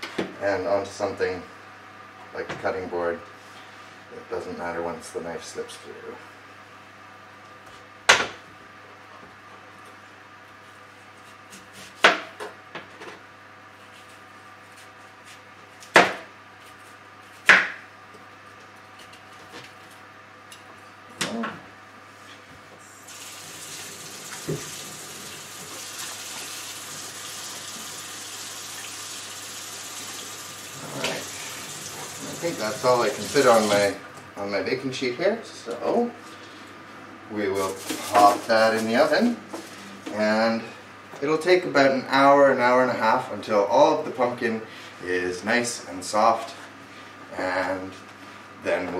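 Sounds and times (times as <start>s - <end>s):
tap running into steel sink: 24.2s - 24.8s.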